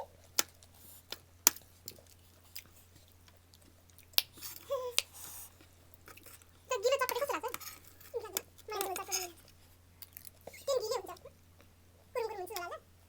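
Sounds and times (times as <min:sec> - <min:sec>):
crunchy snack bites and chewing: 0:00.1 - 0:06.5, 0:07.1 - 0:10.5.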